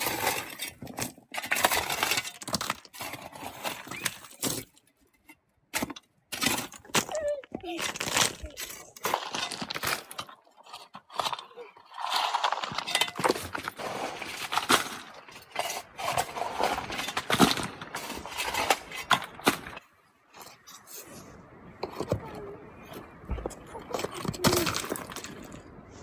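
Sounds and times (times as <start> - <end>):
hard objects clinking and knocking: 0.0 - 19.8.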